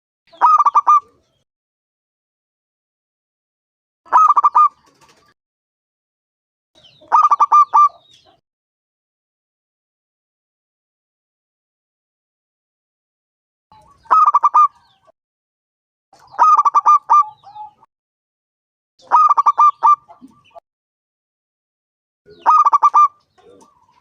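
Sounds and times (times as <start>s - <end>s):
dove cooing: 0.4s - 1.2s, 7.1s - 8.0s, 13.8s - 14.9s, 16.2s - 17.9s, 19.0s - 20.6s, 22.3s - 24.0s.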